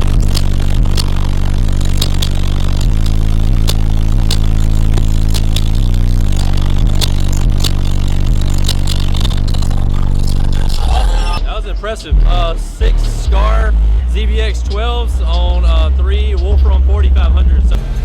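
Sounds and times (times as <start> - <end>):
sharp rattling clicks: 0.0 - 10.8
loud subwoofer bass notes: 0.0 - 18.0.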